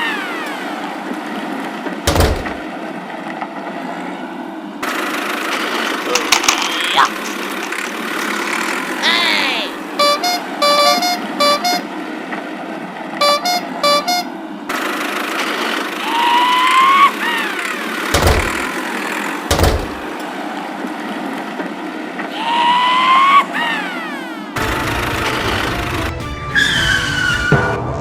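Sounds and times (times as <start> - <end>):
engine drone: 0.0 - 6.1, 7.1 - 28.0
cartoon horn beeps: 10.0 - 11.9, 13.2 - 14.3, 24.1 - 27.8.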